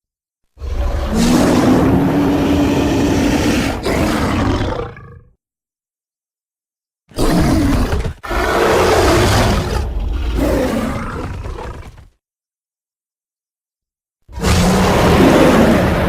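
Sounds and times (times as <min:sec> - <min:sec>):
giant cat creature roaring: 0:00.6 - 0:05.4, 0:07.1 - 0:12.1, 0:14.3 - 0:16.0.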